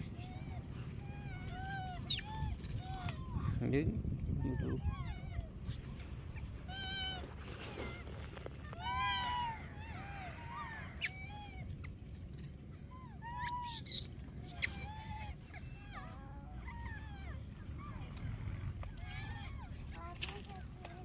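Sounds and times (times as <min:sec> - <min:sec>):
animal calls rising and falling: 0:13.3 - 0:15.0.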